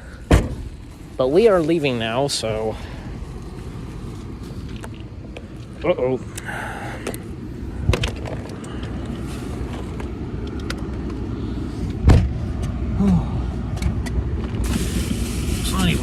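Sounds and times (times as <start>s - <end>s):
car engine low rumble: 0.0s - 16.0s.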